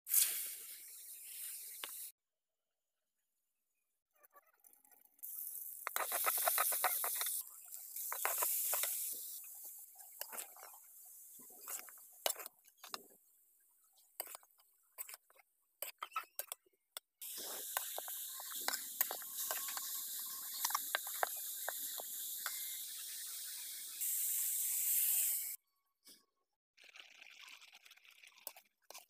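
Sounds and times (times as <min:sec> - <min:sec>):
cabbage sizzling in oil: 0:05.2 - 0:12.5, 0:17.2 - 0:25.6
spatula scraping and tapping pan: 0:05.8 - 0:07.4, 0:08.0 - 0:09.1, 0:17.4 - 0:22.7.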